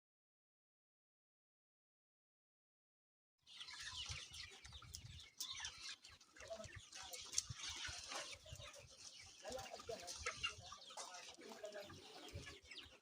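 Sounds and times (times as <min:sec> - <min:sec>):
chickens clucking and chirping: 0:03.4 - 0:13.0.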